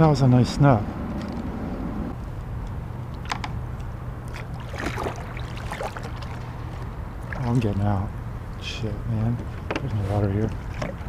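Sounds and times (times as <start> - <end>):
steady low hum: 0.0 - 11.0
paddle splashing and knocking hull: 4.3 - 7.9, 9.4 - 11.0.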